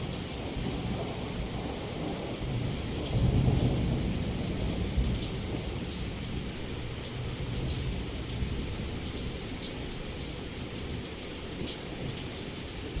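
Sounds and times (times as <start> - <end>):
heavy rain pouring: 0.0 - 13.0
low thunder rumble: 0.4 - 6.6.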